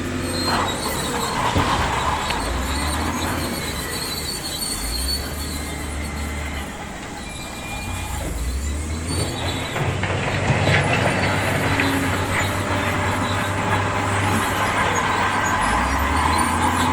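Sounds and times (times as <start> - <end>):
diesel engine droning: 0.0 - 16.9
high metallic squeals: 0.0 - 16.9
metal clanking: 7.9 - 16.9.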